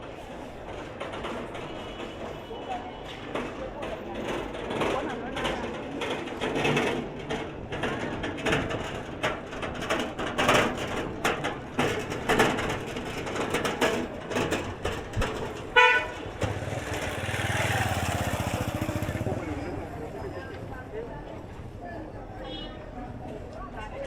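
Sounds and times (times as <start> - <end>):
busy street traffic: 0.0 - 24.0
vehicle engine running close: 16.3 - 21.0.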